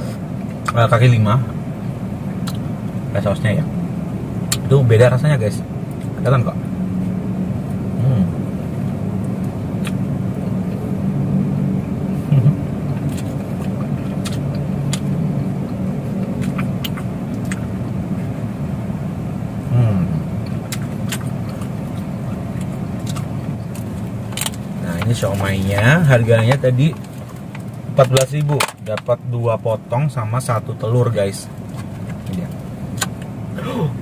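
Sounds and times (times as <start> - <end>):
car engine idling: 0.0 - 34.0
person chewing: 2.3 - 2.6, 7.7 - 10.9, 12.1 - 18.4, 19.8 - 25.8.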